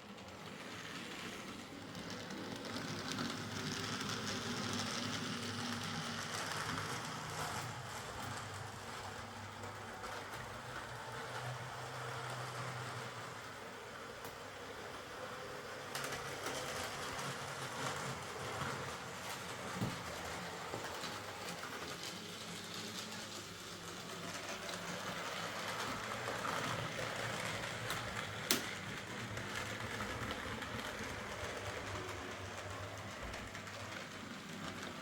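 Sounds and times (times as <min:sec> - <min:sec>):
wheels clicking on track: 0:00.0 - 0:35.0
model train motor whirring: 0:00.4 - 0:10.0.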